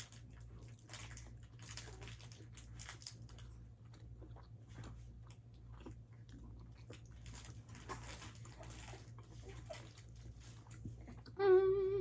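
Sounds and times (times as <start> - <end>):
low steady hum: 0.0 - 12.0
person chewing: 3.4 - 11.4.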